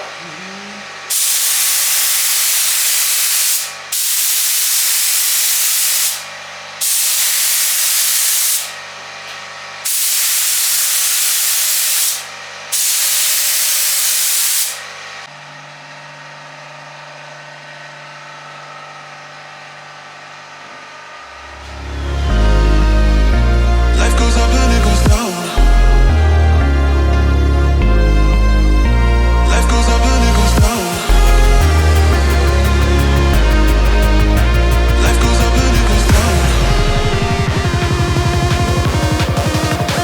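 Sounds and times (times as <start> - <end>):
paint spraying hiss: 1.1 - 8.8, 9.9 - 14.9, 30.7 - 36.9.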